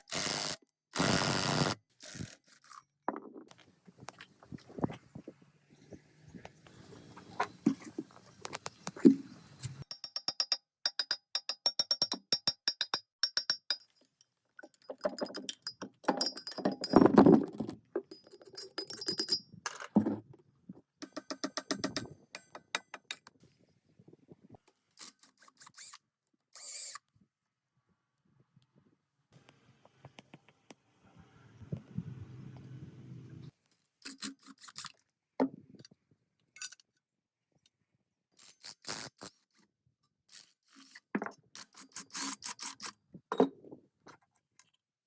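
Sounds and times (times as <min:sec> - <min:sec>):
metallic clicks and taps: 0:21.0 - 0:23.3.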